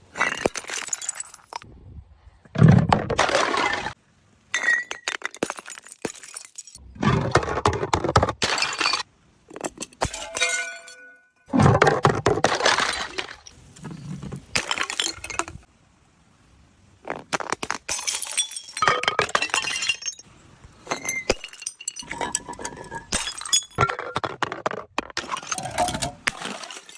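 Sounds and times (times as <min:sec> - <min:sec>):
glass bottles smashing: 0:00.2 - 0:01.6, 0:03.2 - 0:06.8, 0:08.3 - 0:13.6, 0:14.2 - 0:15.6, 0:17.4 - 0:20.3, 0:20.9 - 0:26.9.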